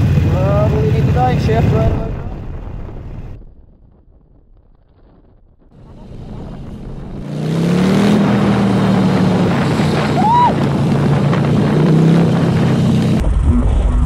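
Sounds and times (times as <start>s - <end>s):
motorcycle engine accelerating: 0.0s - 2.3s, 5.7s - 14.0s
wind buffeting microphone: 0.0s - 13.6s.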